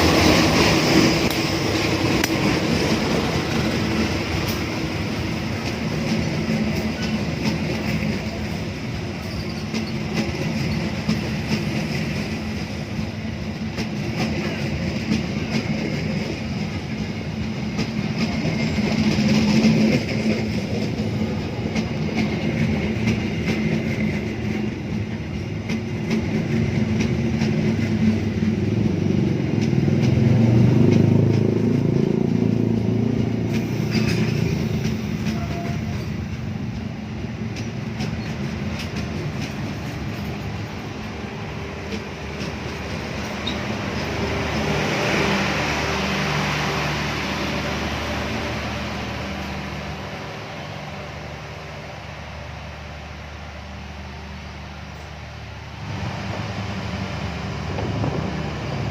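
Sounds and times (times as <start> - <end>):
train wheels rumbling on rail: 0.0 - 58.9
wheels clicking over rail joints: 0.1 - 44.4.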